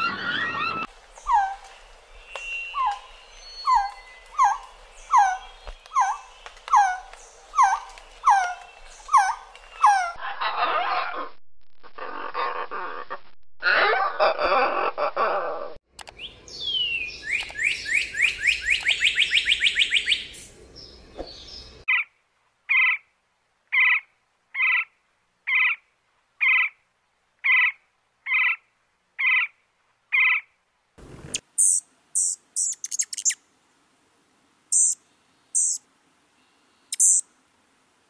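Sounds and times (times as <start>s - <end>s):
short evenly spaced bird notes: 1.0s - 9.9s, 16.0s - 22.2s, 31.4s - 33.5s, 34.7s - 37.4s.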